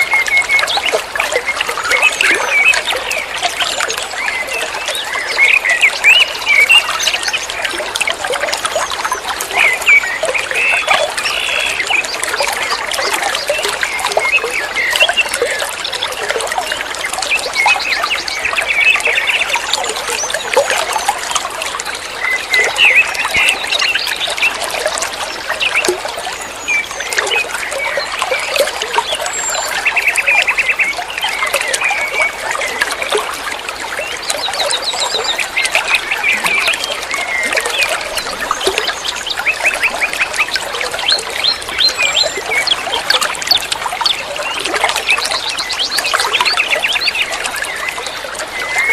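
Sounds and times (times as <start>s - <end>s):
small birds chirping and trilling: 0.0s - 48.9s
water trickling: 0.0s - 48.9s.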